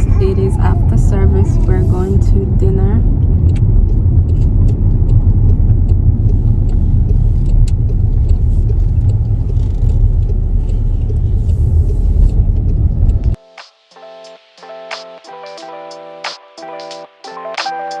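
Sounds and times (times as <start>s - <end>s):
car driving rumble: 0.0s - 13.4s.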